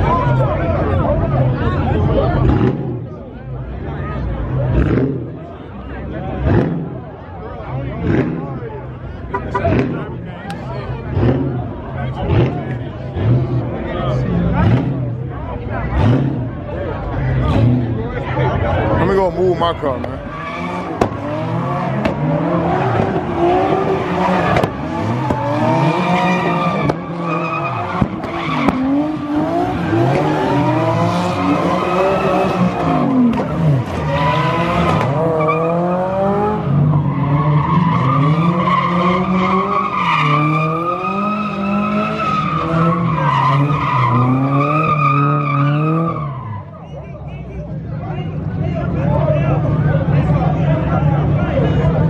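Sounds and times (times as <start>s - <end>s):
car engine revving hard: 2.2s - 3.1s, 4.4s - 5.5s, 6.2s - 7.1s, 7.9s - 18.1s, 20.0s - 46.6s.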